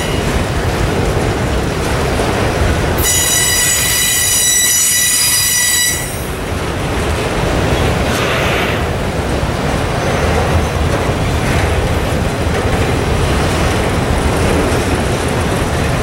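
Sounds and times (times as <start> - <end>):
train wheels rumbling on rails: 0.0 - 16.0
high wheel squeal: 3.0 - 6.3.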